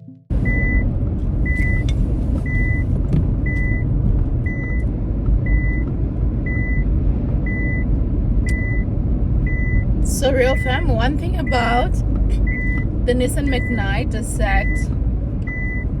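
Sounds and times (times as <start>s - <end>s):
road and engine noise in car: 0.2s - 16.0s
seatbelt reminder beeping: 1.5s - 2.9s, 8.5s - 8.9s, 10.5s - 15.9s.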